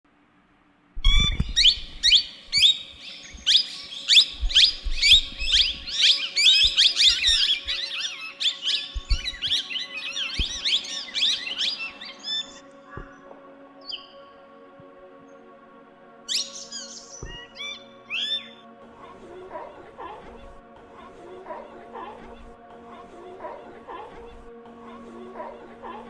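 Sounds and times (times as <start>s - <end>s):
low bumps: 1.0s - 6.0s
small birds chirping: 1.0s - 15.6s, 16.3s - 26.0s.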